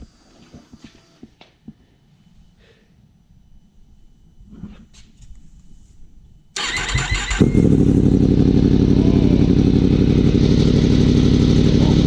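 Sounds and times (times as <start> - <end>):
motorcycle engine idling: 6.7 - 12.0.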